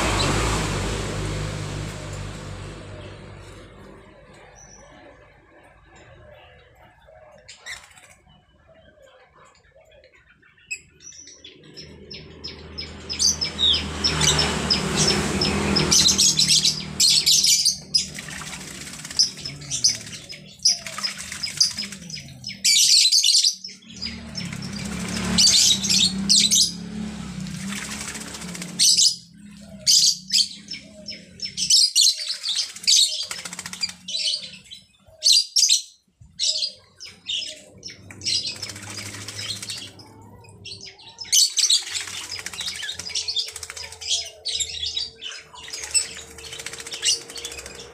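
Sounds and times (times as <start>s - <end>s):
bird chirps: 5.9s - 47.9s
bird wings splashing water: 13.5s - 22.6s, 24.0s - 29.4s, 32.2s - 34.2s, 37.9s - 40.0s, 41.5s - 44.6s, 45.6s - 47.9s.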